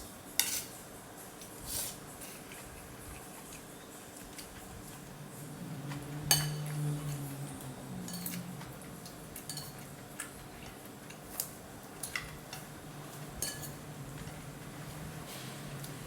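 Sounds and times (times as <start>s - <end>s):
cutlery clinking on a bowl: 0.4s - 0.8s, 5.7s - 14.5s
low hum: 4.8s - 10.7s.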